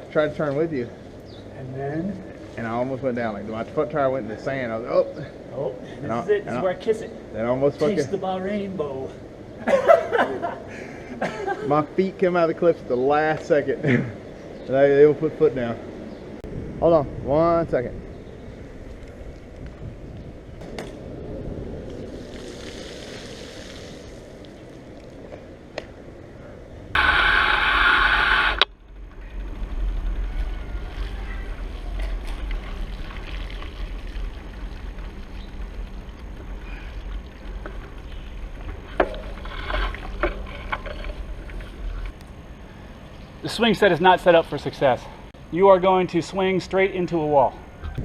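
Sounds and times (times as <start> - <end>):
bicycle road rumble: 0.0 - 48.0
wind buffeting microphone: 15.6 - 22.8, 47.7 - 48.0
harsh buzzing sound: 27.0 - 31.2.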